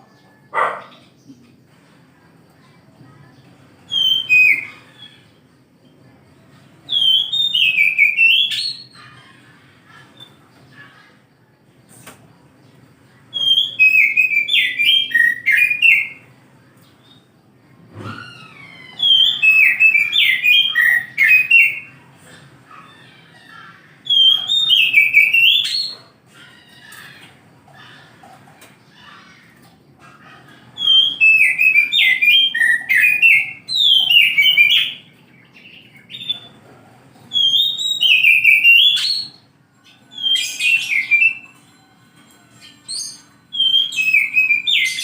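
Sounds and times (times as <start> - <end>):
bird singing whistled phrases: 3.9 - 5.2, 6.9 - 9.0, 13.3 - 16.2, 18.1 - 21.9, 24.0 - 26.0, 30.8 - 36.5, 37.3 - 39.5, 40.1 - 41.6, 42.6 - 45.0.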